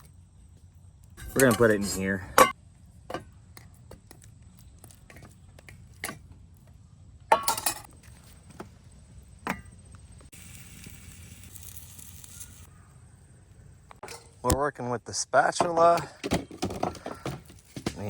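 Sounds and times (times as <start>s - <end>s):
pan and utensils clinking: 7.3s - 7.9s
steady hiss: 8.9s - 14.0s.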